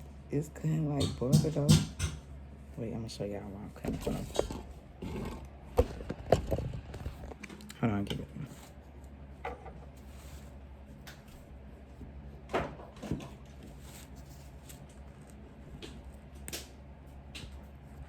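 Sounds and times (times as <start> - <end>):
low steady hum: 0.0 - 18.0
knife knocking on cake pan: 0.9 - 2.2.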